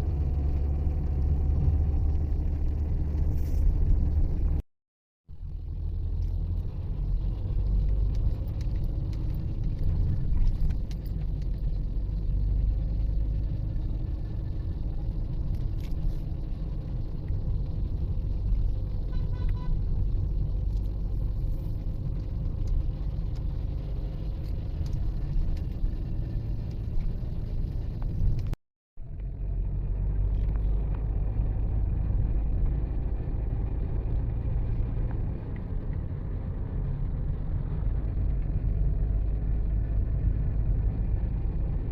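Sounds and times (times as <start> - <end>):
vehicle engine and road noise: 0.0 - 4.6, 5.3 - 41.9.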